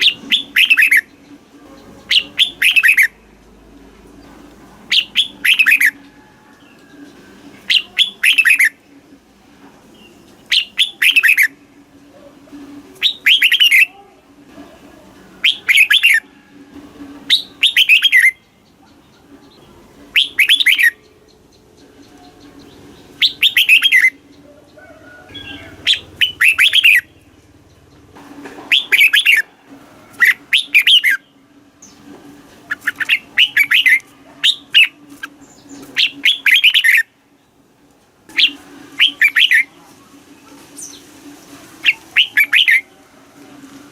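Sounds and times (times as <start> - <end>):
bird singing warbled phrases: 0.0 - 3.4, 4.9 - 6.0, 7.1 - 8.9, 9.9 - 11.7, 13.0 - 14.0, 15.4 - 16.3, 17.3 - 28.1, 28.7 - 29.5, 30.1 - 32.0, 32.7 - 37.7, 38.3 - 39.8, 41.8 - 43.0.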